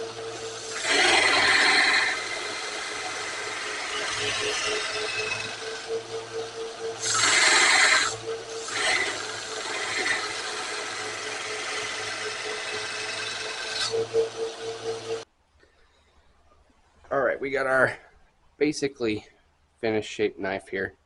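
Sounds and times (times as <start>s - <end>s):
steel grinding: 0.0s - 15.2s
grinder motor hum: 0.0s - 15.3s.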